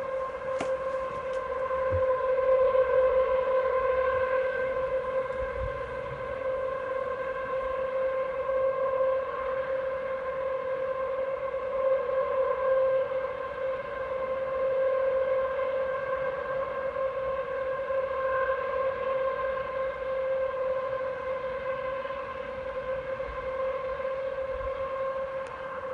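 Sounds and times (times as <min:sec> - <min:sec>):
steady droning hum: 0:00.0 - 0:11.8.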